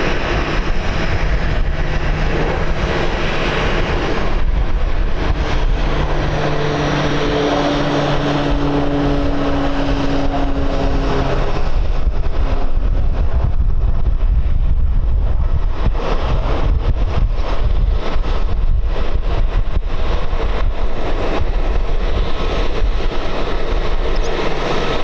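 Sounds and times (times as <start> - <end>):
airliner engines passing: 0.0 - 25.0
wind buffeting microphone: 0.0 - 25.0.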